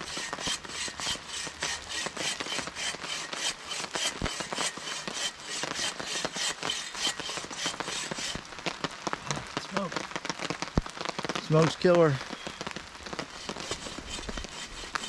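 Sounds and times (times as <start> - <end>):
hand saw cutting wood: 0.0 - 8.7, 13.1 - 15.0.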